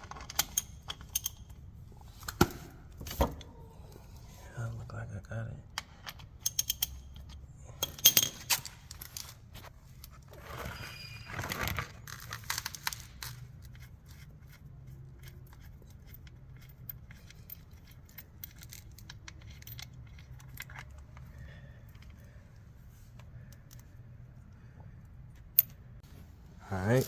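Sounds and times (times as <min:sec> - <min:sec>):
tools clicking and clinking: 0:00.0 - 0:02.6, 0:05.7 - 0:09.4, 0:12.4 - 0:22.3.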